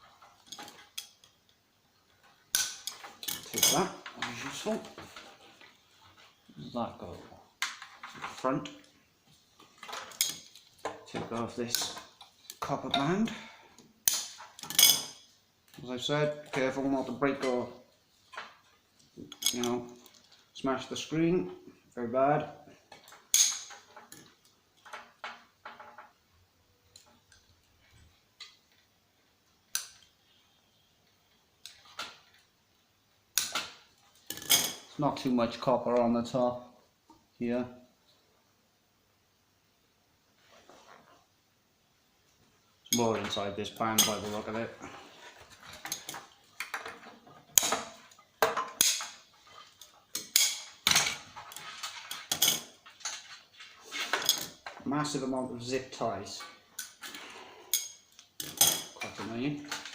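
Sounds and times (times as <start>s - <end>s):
hand tools clicking and clinking: 2.5s - 4.7s, 9.6s - 11.0s, 14.0s - 15.8s, 19.3s - 20.3s, 22.9s - 25.2s, 33.4s - 34.9s, 42.9s - 44.5s, 45.5s - 54.8s, 56.4s - 59.9s.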